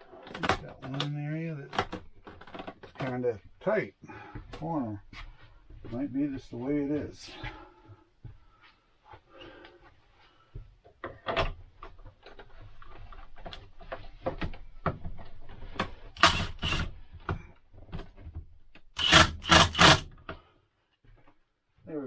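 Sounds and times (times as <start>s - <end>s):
parts clicking and knocking: 0.0s - 1.1s, 1.7s - 3.2s, 13.4s - 20.4s.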